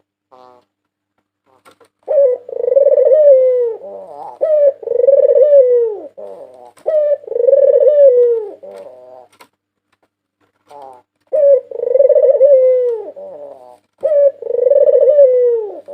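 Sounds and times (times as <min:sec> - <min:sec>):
dove cooing: 0:02.0 - 0:09.5, 0:10.7 - 0:15.9.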